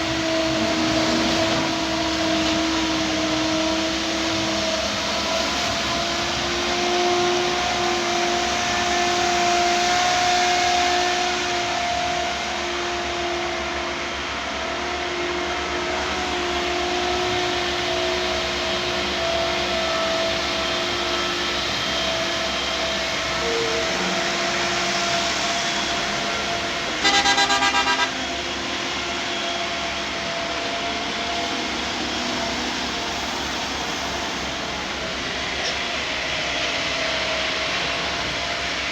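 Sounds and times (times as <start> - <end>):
heavy machinery engine running: 0.0 - 38.9
vehicle horn blast: 27.0 - 28.3.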